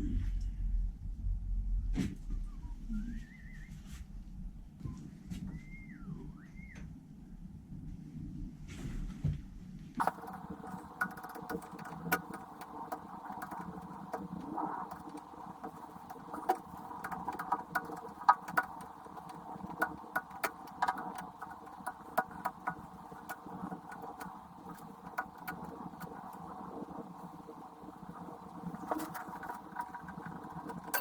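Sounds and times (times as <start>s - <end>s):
irregular clicks and rattles: 10.0s - 31.0s
lathe motor humming: 10.0s - 31.0s.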